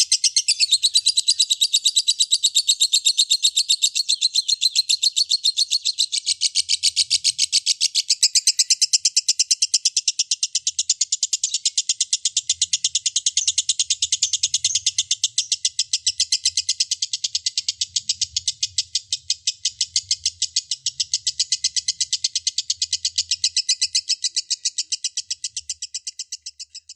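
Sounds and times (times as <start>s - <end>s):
lovebird chattering trill: 0.0s - 26.9s.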